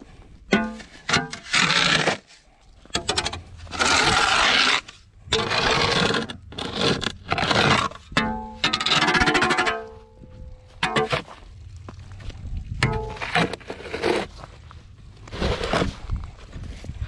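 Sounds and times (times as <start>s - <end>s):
rough scraping strokes: 0.0s - 10.0s, 12.8s - 14.6s.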